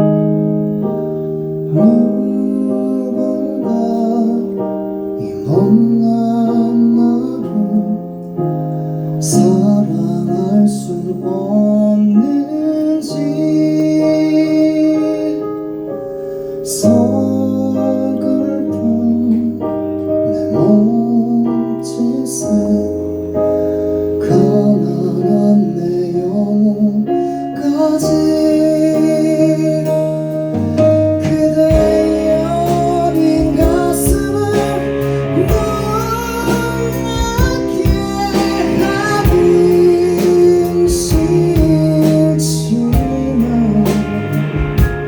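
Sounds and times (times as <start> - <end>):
keyboard chords: 0.0 - 45.0
drums: 28.2 - 45.0.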